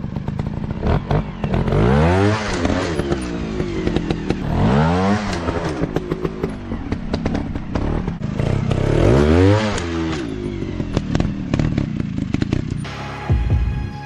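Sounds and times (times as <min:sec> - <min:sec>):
dirt bike engine revving: 0:00.0 - 0:13.2
music with thumping beat: 0:12.9 - 0:14.0.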